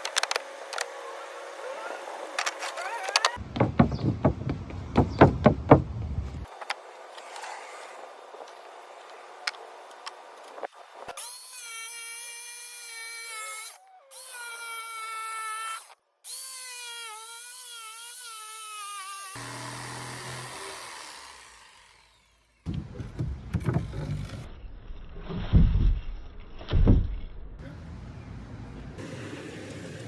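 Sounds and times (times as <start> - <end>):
cordless drill motor whine: 19.2 - 22.4.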